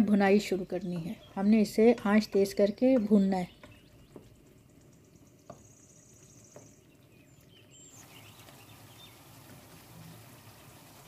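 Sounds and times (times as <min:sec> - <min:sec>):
wooden spatula tapping: 0:00.8 - 0:01.2, 0:01.8 - 0:04.4, 0:05.4 - 0:05.7
food sizzling in a pan: 0:07.9 - 0:11.0.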